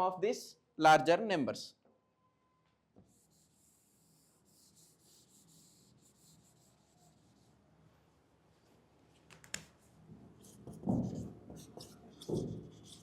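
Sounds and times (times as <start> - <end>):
pen scratching handwriting: 10.4 - 13.0.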